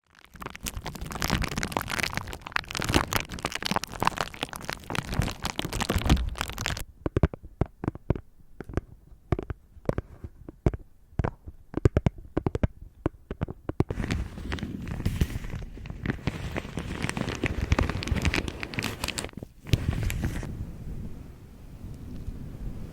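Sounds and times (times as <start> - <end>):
dense crinkling and crackling: 0.0 - 6.9, 13.8 - 20.5
sharp clicks and taps: 6.0 - 14.0.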